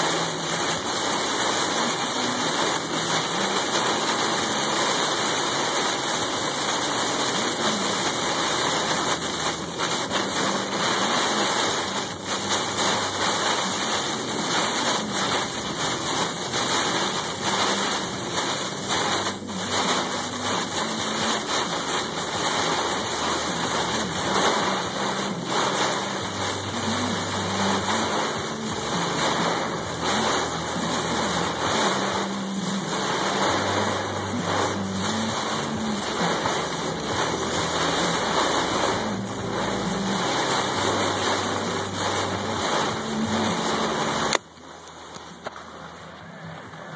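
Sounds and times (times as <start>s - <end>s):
heavy rain: 0.0s - 46.9s.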